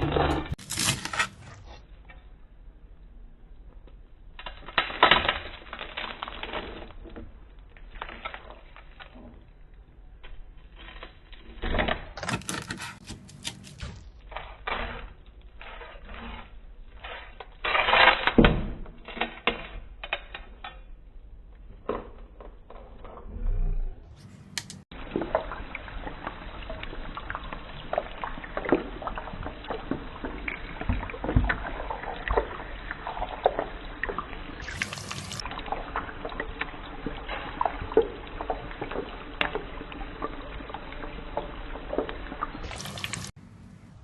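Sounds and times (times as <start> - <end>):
crispy pork skin crackling: 0.0 - 1.8, 4.4 - 9.7, 10.3 - 18.4.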